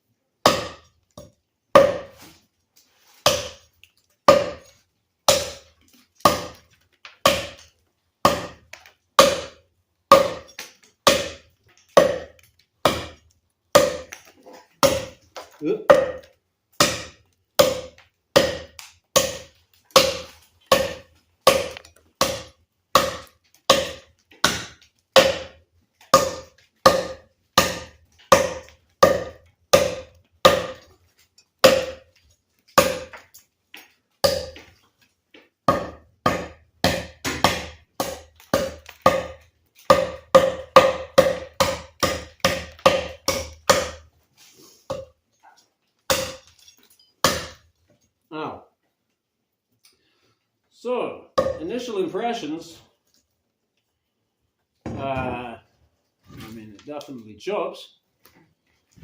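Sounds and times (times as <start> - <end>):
knife chopping wood: 0.4 - 2.2, 3.2 - 3.7, 4.3 - 4.7, 5.3 - 30.9, 31.6 - 32.1, 32.7 - 33.3, 34.2 - 34.7, 35.7 - 44.1, 44.9 - 45.1, 46.1 - 46.5, 47.2 - 47.6, 51.4 - 51.7.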